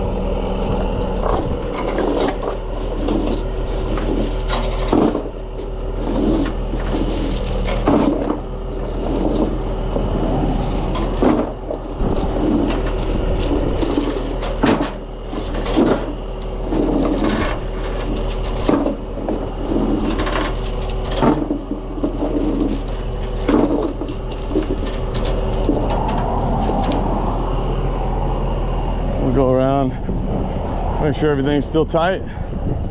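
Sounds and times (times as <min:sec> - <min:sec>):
truck engine idling: 0:00.0 - 0:32.4
chains clinking on metal: 0:00.4 - 0:27.1.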